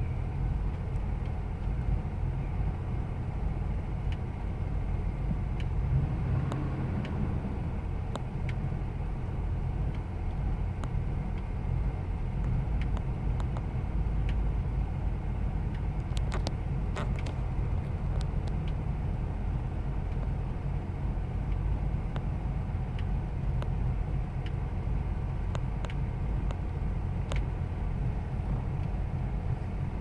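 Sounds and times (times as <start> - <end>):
engine idling rough: 0.0 - 30.0
faint ticks: 12.3 - 14.5.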